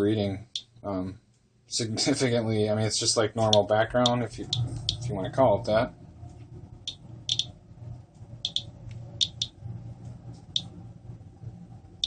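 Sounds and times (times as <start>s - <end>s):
low steady hum: 0.0s - 12.0s
geiger counter clicking: 6.8s - 7.5s, 8.4s - 9.6s.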